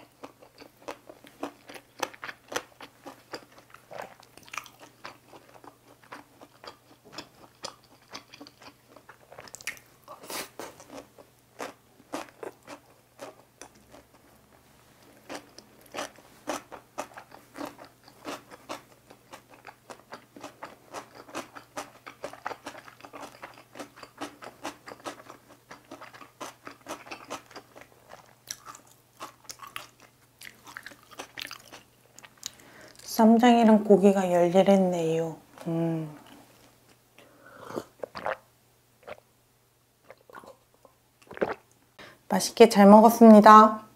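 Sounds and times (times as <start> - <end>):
crisp crunching chewing: 15.0 - 33.0.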